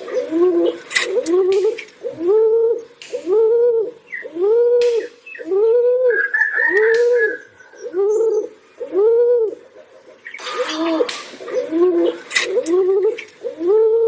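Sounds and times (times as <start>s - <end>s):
high drawn-out bird call: 0.0s - 9.5s, 10.2s - 14.0s
pigeons cooing: 0.0s - 14.0s
sharp clicks: 0.8s - 2.0s, 3.0s - 3.3s, 12.1s - 13.4s.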